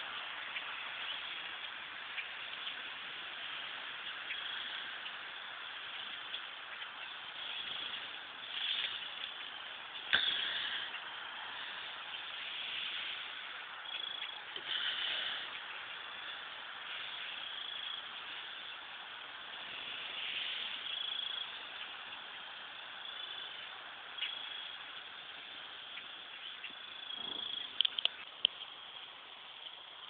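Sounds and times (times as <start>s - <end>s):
flock of birds chattering: 0.0s - 30.0s
steady hiss: 0.0s - 30.0s.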